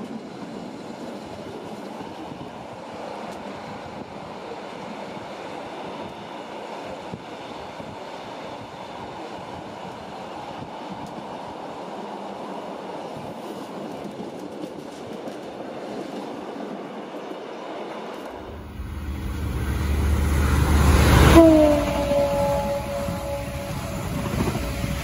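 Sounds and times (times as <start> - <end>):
deep rumble: 18.4 - 25.0.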